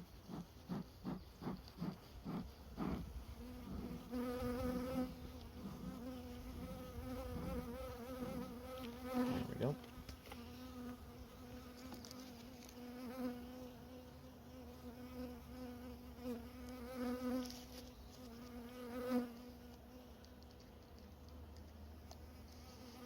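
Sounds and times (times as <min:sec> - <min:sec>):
honey bees buzzing: 0:00.0 - 0:20.2.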